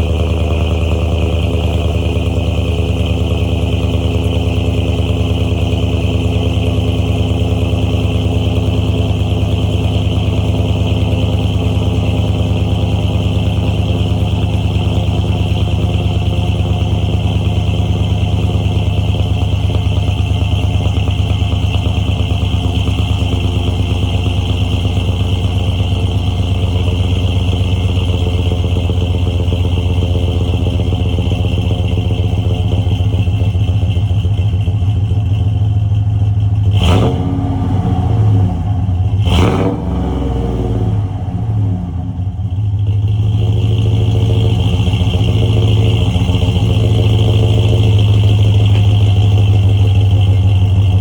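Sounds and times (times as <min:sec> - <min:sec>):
truck engine idling: 0:00.0 - 0:51.0
engine revs: 0:36.6 - 0:51.0.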